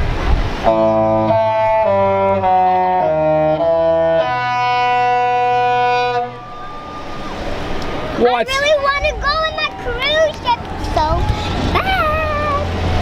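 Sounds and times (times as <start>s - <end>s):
ship's musical horn: 0.6s - 8.1s.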